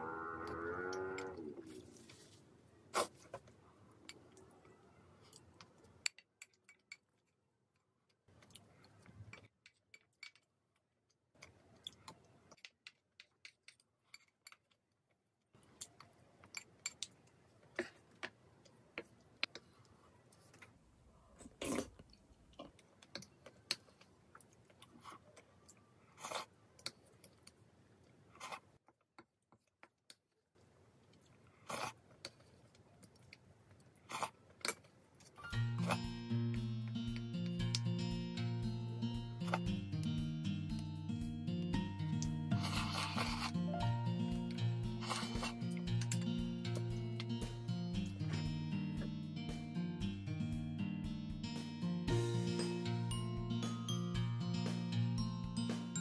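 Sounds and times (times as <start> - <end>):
chewing and smacking: 21.6 - 27.6.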